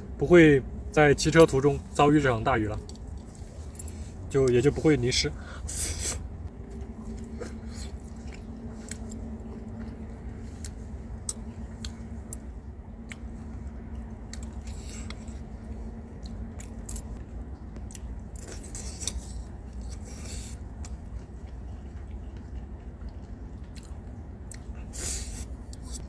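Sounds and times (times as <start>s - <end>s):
chewing: 5.4s - 26.0s.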